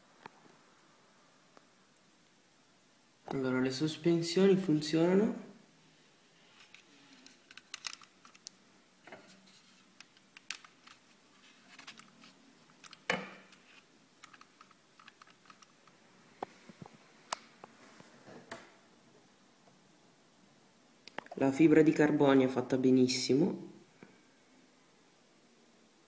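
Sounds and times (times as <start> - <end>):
clicks and taps of model parts: 7.5 - 8.5.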